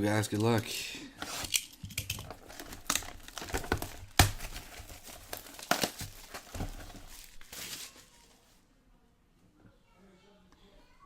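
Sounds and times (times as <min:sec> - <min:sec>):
plastic wrapping crinkling and tearing: 0:01.2 - 0:08.6.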